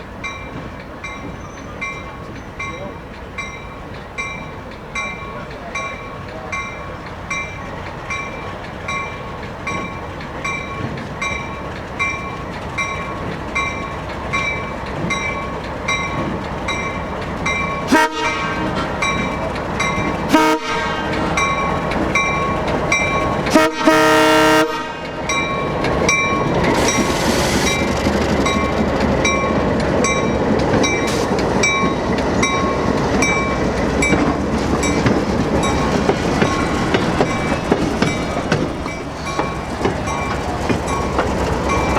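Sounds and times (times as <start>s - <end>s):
train rumbling along track: 0.0s - 41.9s
train horn blasts: 17.8s - 19.1s, 20.3s - 21.4s, 23.5s - 25.4s
bell ringing steadily: 29.3s - 41.9s.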